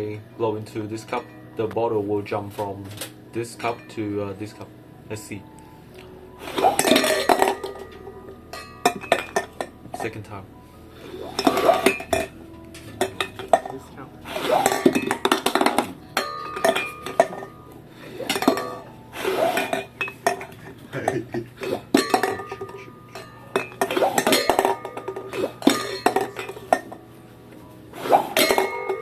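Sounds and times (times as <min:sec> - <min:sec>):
soda can clattering against cups: 0:06.6 - 0:07.9, 0:14.5 - 0:17.5, 0:18.3 - 0:18.8, 0:19.4 - 0:27.0, 0:28.1 - 0:29.0.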